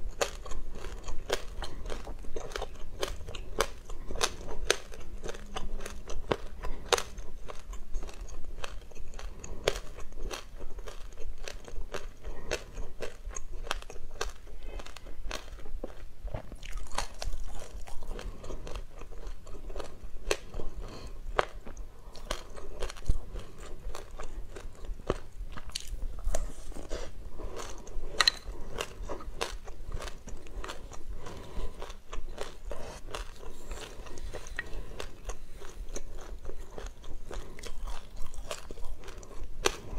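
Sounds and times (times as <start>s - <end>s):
chewing crunchy seeds: 0.0s - 39.9s.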